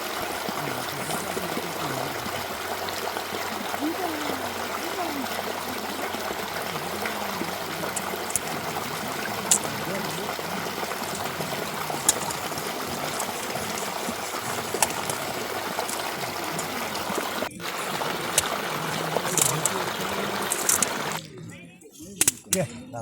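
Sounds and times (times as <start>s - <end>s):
running water: 0.0s - 21.4s
sharp clicks: 20.4s - 21.0s.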